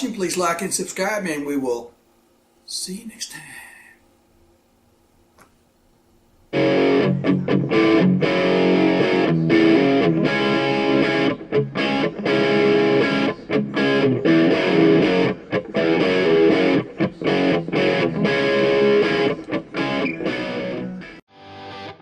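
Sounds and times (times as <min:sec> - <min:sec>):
guitar-led music: 0:06.5 - 0:22.0.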